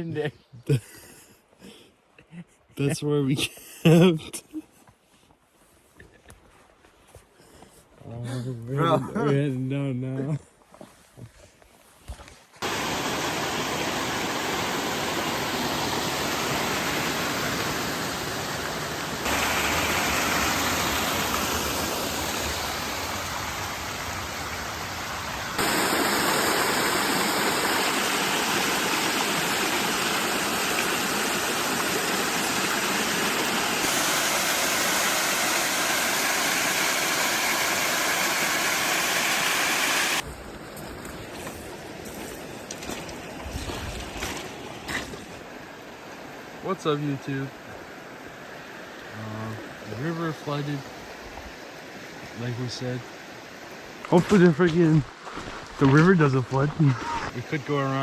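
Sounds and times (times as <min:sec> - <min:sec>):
river rushing: 0:12.6 - 0:40.3.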